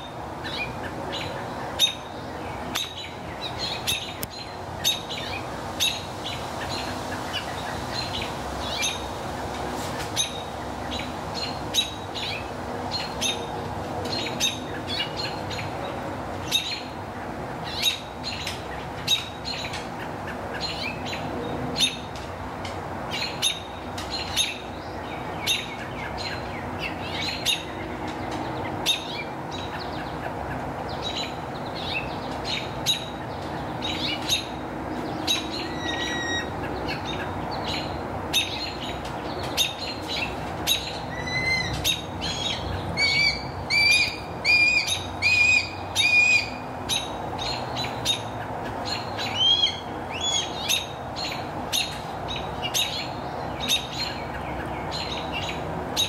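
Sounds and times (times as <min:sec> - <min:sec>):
birds chirping: 0:00.0 - 0:09.2, 0:23.0 - 0:56.0.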